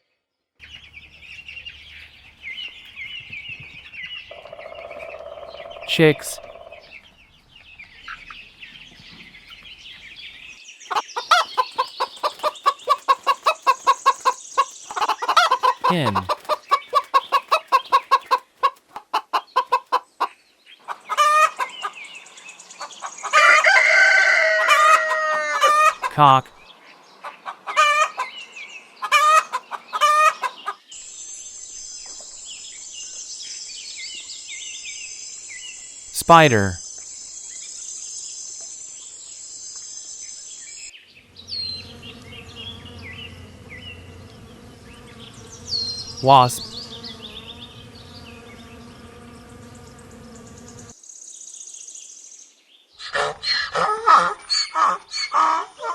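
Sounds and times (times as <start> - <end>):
bird chirps: 0.6 - 18.8, 31.0 - 53.6
hen squawk: 10.9 - 20.0
hen clucking: 10.9 - 20.3, 20.9 - 22.0, 24.5 - 26.4, 29.0 - 30.8
long drawn-out hen call: 11.2 - 20.1, 23.3 - 26.1, 29.0 - 30.8
low insect buzz: 36.8 - 51.3.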